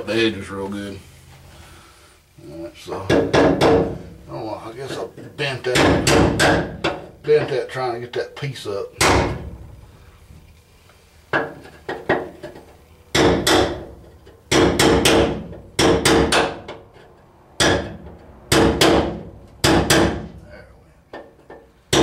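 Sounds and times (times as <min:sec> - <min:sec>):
hammer striking sheet metal: 0:03.1 - 0:04.1, 0:05.7 - 0:07.0, 0:09.0 - 0:09.7, 0:13.1 - 0:16.8, 0:17.6 - 0:20.4.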